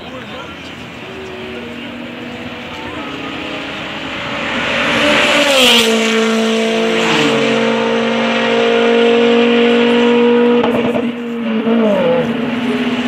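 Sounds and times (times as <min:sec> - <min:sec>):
car engine passing fast: 0:00.4 - 0:13.0.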